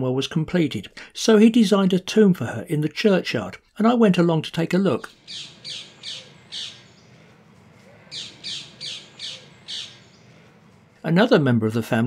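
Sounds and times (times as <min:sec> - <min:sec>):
bird calling with harsh notes: 0:05.1 - 0:10.7.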